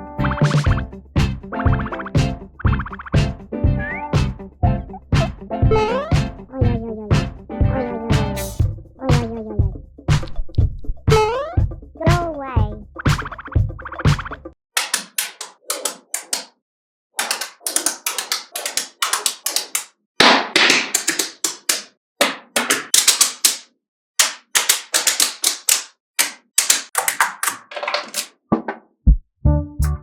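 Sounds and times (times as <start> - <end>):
magnetic balls clicking together: 17.2 - 19.9.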